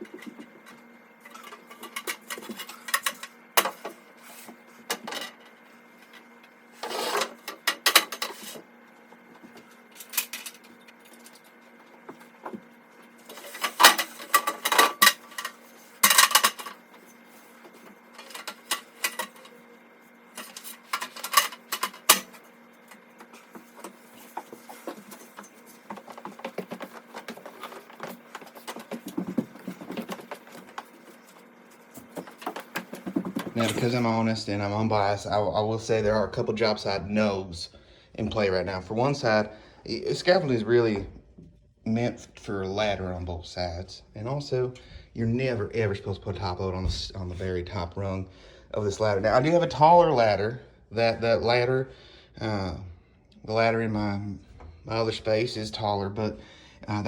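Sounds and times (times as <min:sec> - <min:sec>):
ladder and plank clattering: 0:23.6 - 0:31.4, 0:32.0 - 0:34.0.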